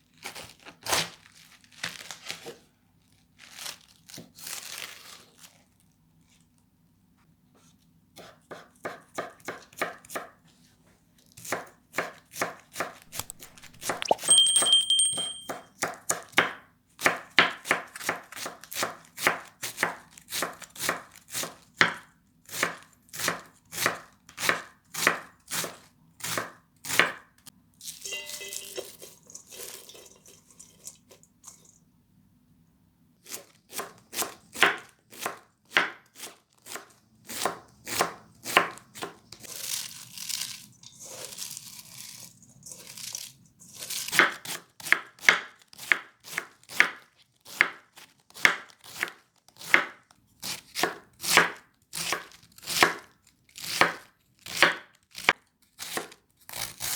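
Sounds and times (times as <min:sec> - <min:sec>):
knife chopping vegetables: 0:07.6 - 0:10.4, 0:11.4 - 0:27.3, 0:33.2 - 0:40.4, 0:42.7 - 0:56.9.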